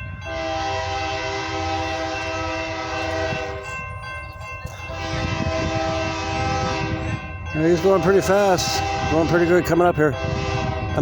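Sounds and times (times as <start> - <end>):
low rumble of train: 0.0 - 11.0
train air horn chord: 0.2 - 3.6, 4.9 - 7.1, 8.0 - 11.0.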